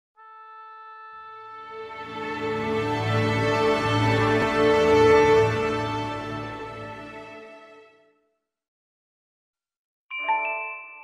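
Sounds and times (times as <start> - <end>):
theme music with held chords: 0.2 - 8.1.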